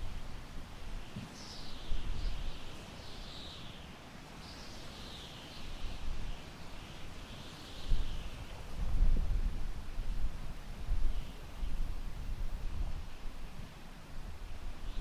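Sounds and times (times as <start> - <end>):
wind gusting on microphone: 8.0 - 15.0.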